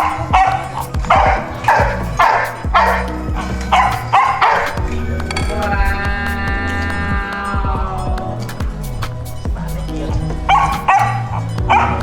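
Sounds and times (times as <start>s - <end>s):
dog barking: 0.0s - 4.8s, 10.5s - 12.0s
music with bass line: 0.0s - 12.0s.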